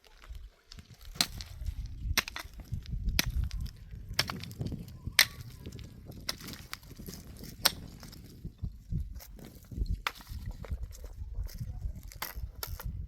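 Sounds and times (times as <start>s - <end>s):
hand tool striking: 1.1s - 8.2s.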